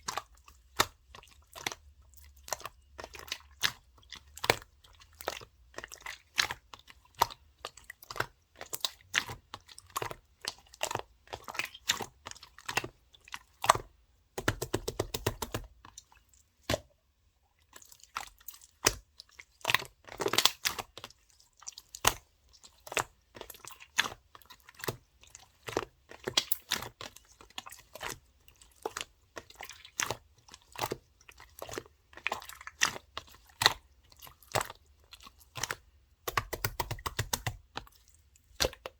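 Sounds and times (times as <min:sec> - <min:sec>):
slime squished by hand: 0:10.8 - 0:15.9, 0:19.6 - 0:20.9, 0:34.4 - 0:38.9.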